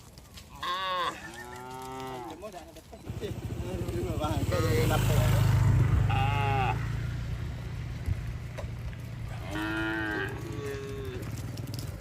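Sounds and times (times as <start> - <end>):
cattle mooing: 0.6 - 2.5, 6.0 - 6.9, 9.3 - 11.8.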